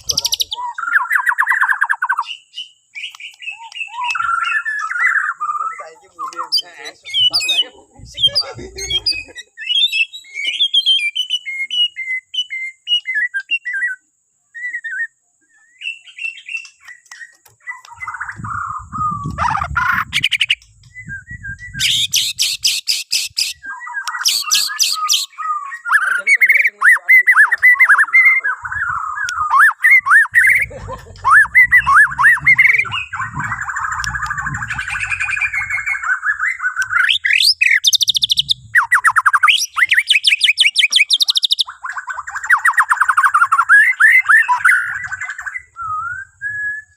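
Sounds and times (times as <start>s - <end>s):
songbird singing whistles and trills: 0.0s - 46.9s
faint low rumbling: 30.3s - 36.3s, 38.3s - 38.8s.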